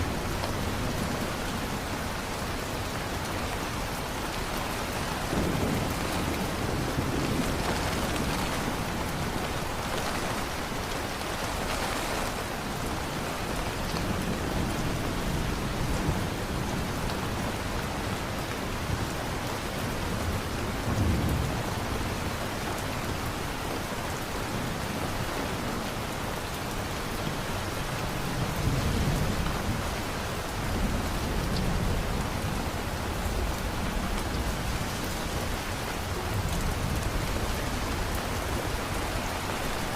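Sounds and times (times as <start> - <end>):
heavy rain: 0.0 - 39.9
thunder rumbling: 4.4 - 12.4.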